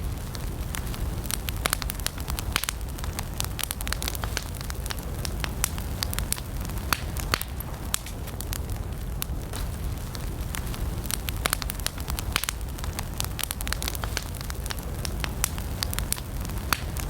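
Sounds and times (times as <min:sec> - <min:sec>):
campfire crackling and popping: 0:00.0 - 0:17.0
low rumble of flames: 0:00.0 - 0:17.0.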